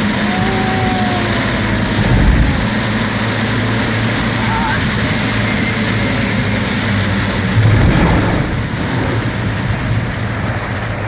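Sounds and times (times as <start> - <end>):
rain hiss: 0.0 - 11.0
vehicle engine hum: 0.0 - 11.0
wind and road noise: 0.0 - 11.0.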